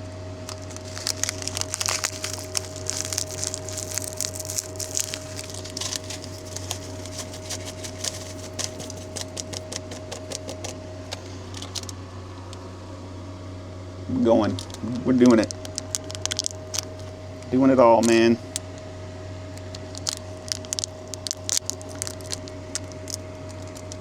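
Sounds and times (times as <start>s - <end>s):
steady hum: 0.0s - 24.0s
plastic packet crinkling: 0.5s - 10.8s, 11.5s - 12.0s, 14.6s - 17.1s, 19.6s - 24.0s.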